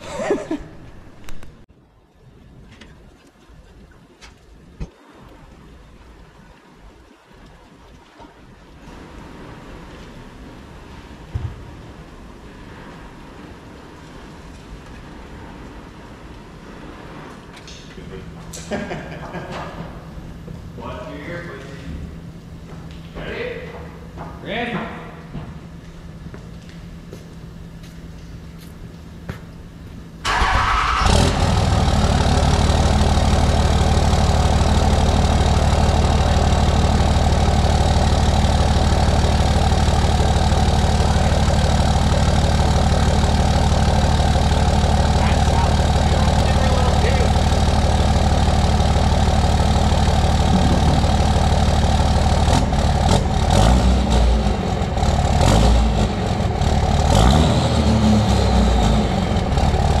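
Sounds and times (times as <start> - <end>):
diesel truck engine idling: 26.9 - 60.0.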